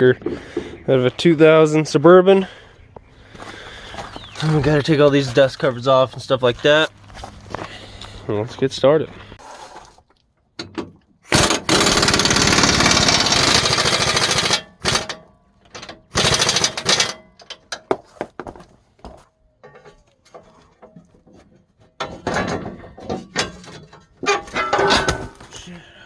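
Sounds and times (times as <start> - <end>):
impact wrench running: 11.3 - 15.2, 16.1 - 17.2.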